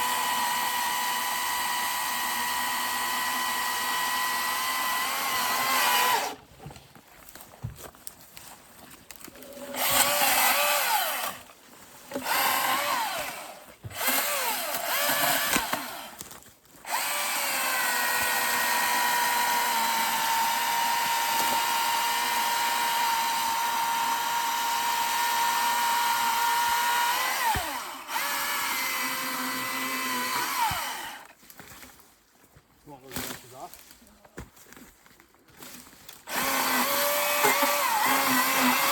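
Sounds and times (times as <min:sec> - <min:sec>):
chainsaw revving and cutting: 0:00.0 - 0:06.4, 0:09.3 - 0:11.5, 0:12.1 - 0:16.2, 0:16.8 - 0:31.3, 0:36.2 - 0:38.9.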